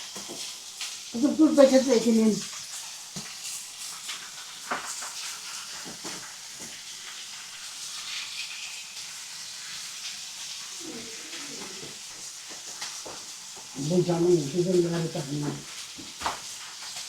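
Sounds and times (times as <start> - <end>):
food sizzling: 0.0 - 17.0.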